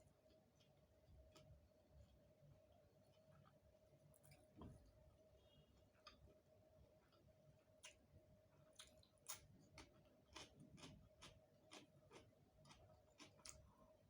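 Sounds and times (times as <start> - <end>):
person chewing food: 0.0 - 2.2, 5.8 - 13.8.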